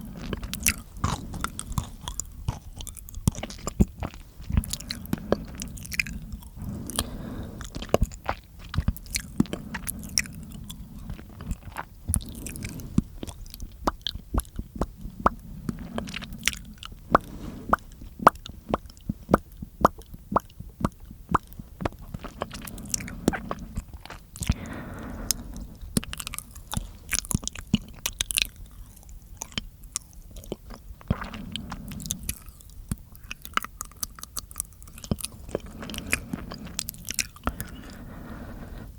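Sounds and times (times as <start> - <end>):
wet mouth clicks and smacks: 11.1 - 24.6, 26.0 - 37.8.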